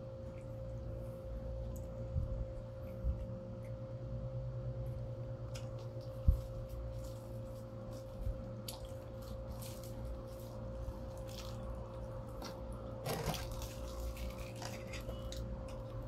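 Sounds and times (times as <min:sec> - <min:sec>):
steady background hum: 0:00.0 - 0:16.0
person chewing food: 0:05.4 - 0:16.0.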